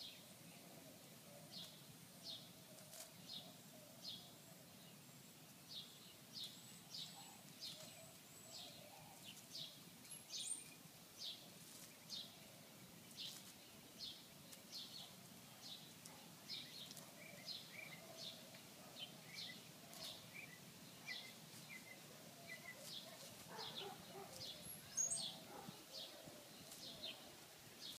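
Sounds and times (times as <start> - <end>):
bird chirping: 0.0 - 28.0.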